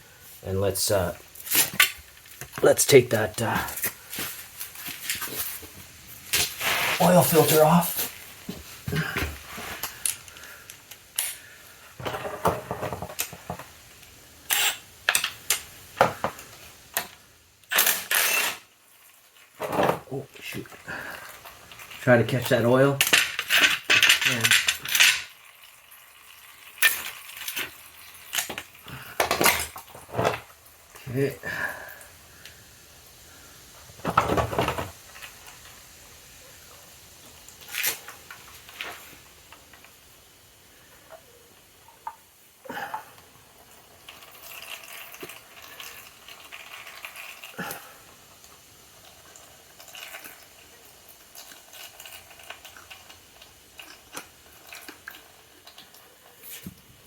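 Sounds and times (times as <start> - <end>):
hands scraping on motorcycle: 6.3 - 10.0
sharp scrape or clatter: 6.4 - 7.6, 17.8 - 18.6.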